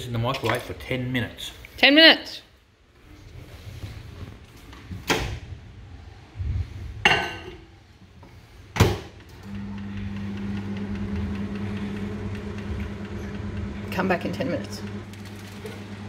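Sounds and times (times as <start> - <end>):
microwave oven humming: 9.4 - 16.0.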